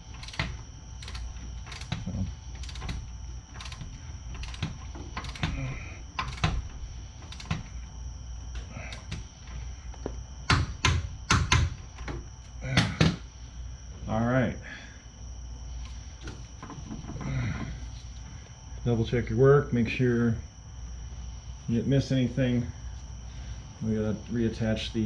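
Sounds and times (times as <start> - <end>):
ratchet wrench clicking: 0.1 - 2.0, 2.6 - 5.6, 6.2 - 6.6, 7.2 - 7.7.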